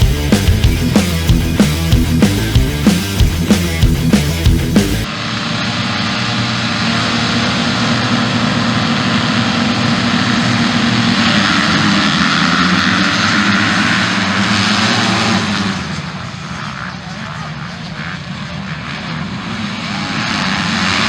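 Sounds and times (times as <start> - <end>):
motorcycle engines at high revs: 0.0 - 21.0.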